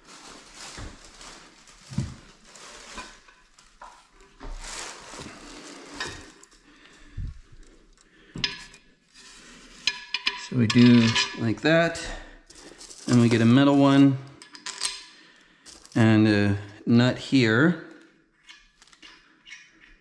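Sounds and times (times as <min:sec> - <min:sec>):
rustling: 0:00.0 - 0:11.8, 0:12.4 - 0:14.0
small metal parts clinking: 0:09.8 - 0:11.5, 0:12.5 - 0:13.6, 0:14.4 - 0:16.1.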